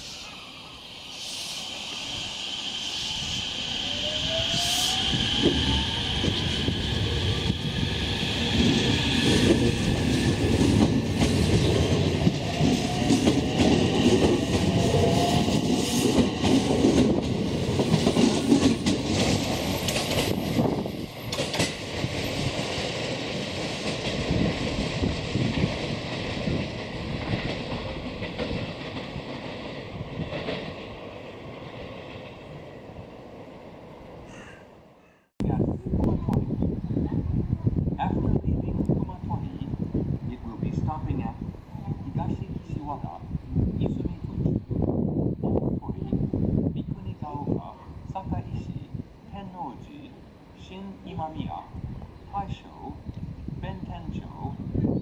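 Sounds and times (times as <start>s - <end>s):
train wheels rumbling on rails: 1.2s - 32.7s.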